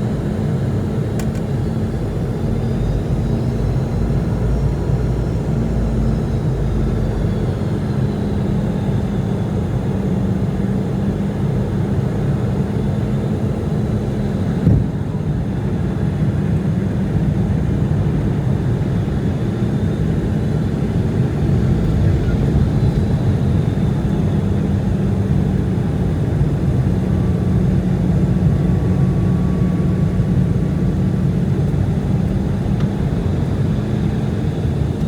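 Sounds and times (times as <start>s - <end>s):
jet engines rumbling: 0.0s - 35.0s
brief knock: 14.6s - 14.9s.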